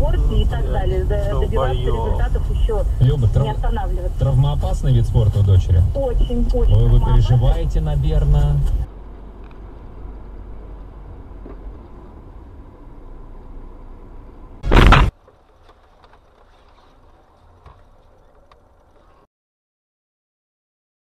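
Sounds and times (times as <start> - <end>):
moving car road rumble: 0.0 - 19.3
sudden loud bang: 14.6 - 15.1.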